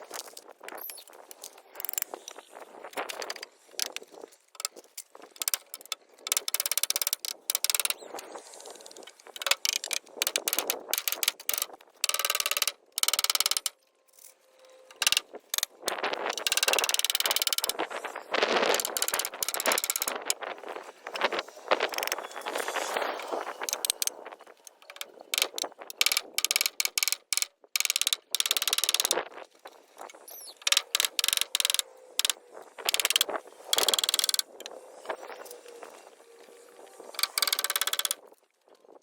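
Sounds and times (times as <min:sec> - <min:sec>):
rapid rattling bursts: 0:04.6 - 0:13.8, 0:14.6 - 0:29.4, 0:30.0 - 0:35.2.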